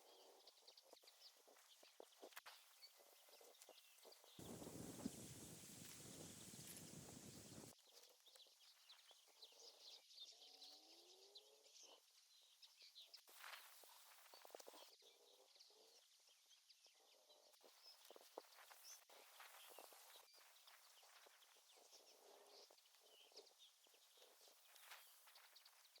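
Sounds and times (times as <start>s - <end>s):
faint bird chirps: 0.0s - 26.0s
small clicks and rustles: 0.8s - 9.4s, 13.2s - 14.9s, 22.6s - 26.0s.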